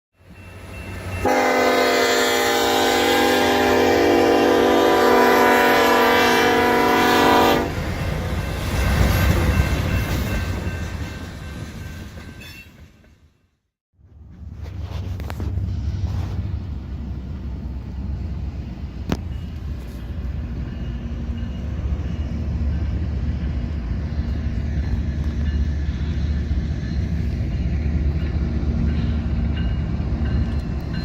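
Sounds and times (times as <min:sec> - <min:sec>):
train rumbling past: 0:00.2 - 0:31.0
locomotive air horn chord: 0:01.2 - 0:07.8.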